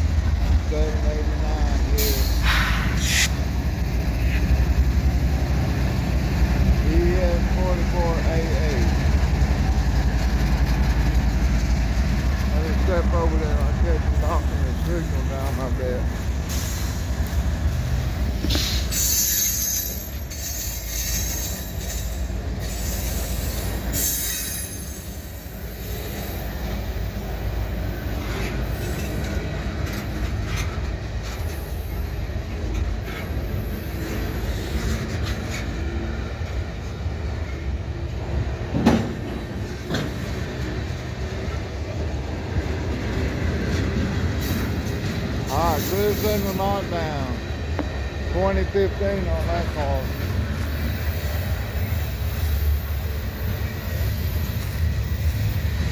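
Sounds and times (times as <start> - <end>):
train wheels rumbling on rails: 0.0 - 55.9
high-pitched wheel squeal: 18.6 - 22.1.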